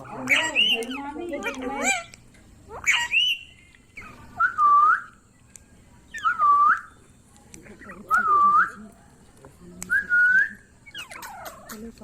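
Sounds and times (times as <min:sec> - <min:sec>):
parrot whistling: 0:00.2 - 0:01.1, 0:02.7 - 0:05.2, 0:06.1 - 0:07.0.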